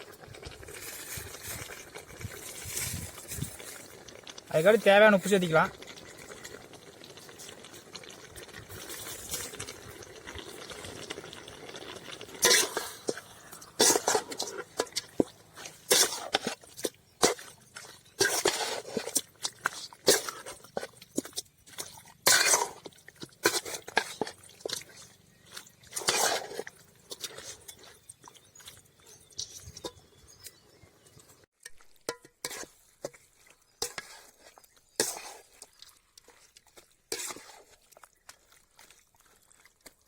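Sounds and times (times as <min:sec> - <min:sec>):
food sizzling in a pot: 0:00.0 - 0:21.3, 0:22.0 - 0:27.2
spoon scraping and knocking pot: 0:12.4 - 0:28.4, 0:31.6 - 0:34.4.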